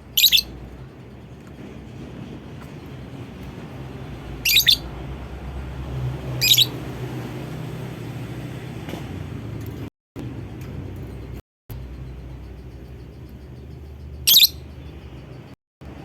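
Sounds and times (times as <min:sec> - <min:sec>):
bird shrill calls: 0:00.0 - 0:00.5, 0:04.4 - 0:04.9, 0:06.4 - 0:06.7, 0:14.2 - 0:14.7
low background hum: 0:10.2 - 0:16.0.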